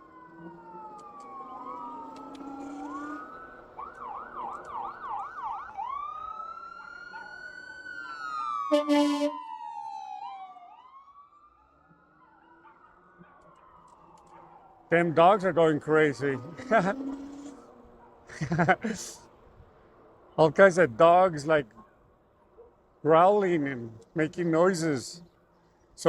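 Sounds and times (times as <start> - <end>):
emergency siren wailing and yelping: 0.0 - 19.3
vehicle horn blast: 8.7 - 9.3.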